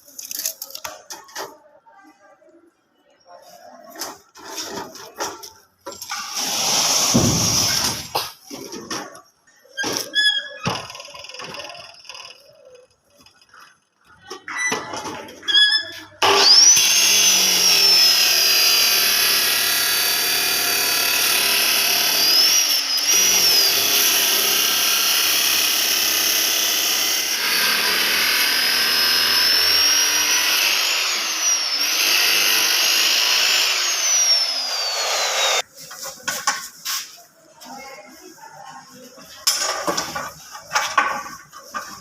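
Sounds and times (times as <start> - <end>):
electric power tool whining: 16.2 - 35.6.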